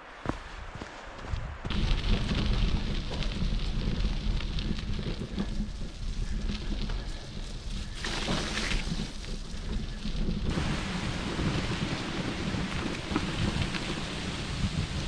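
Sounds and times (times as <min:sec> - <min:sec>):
bicycle tyres rolling on gravel: 0:00.0 - 0:15.0
wind buffeting microphone: 0:00.0 - 0:15.0
loud hiss: 0:10.4 - 0:15.0.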